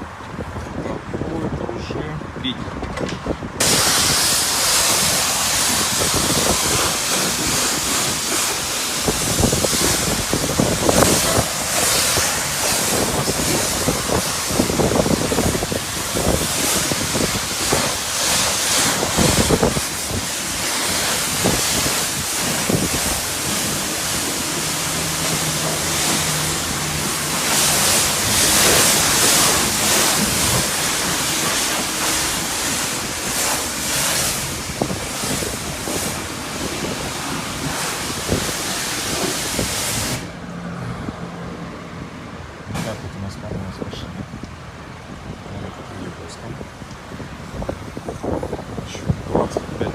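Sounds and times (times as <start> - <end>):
pressure washer spraying water: 3.6 - 40.6.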